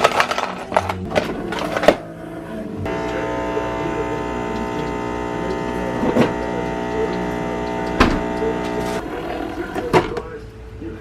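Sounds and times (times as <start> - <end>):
small electric motor humming: 2.9 - 9.6.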